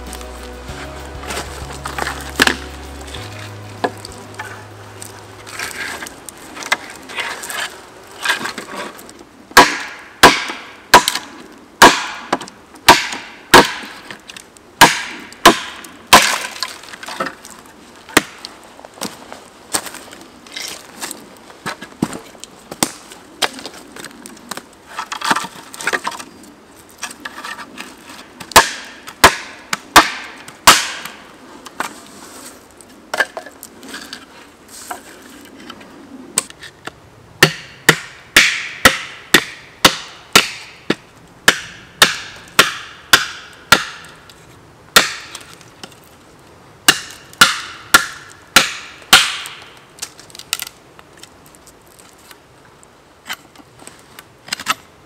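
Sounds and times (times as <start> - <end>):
axe chopping wood: 9.5 - 14.0, 14.8 - 16.7, 18.1 - 18.4, 28.4 - 31.2, 37.4 - 44.1, 44.9 - 45.5, 46.9 - 49.7.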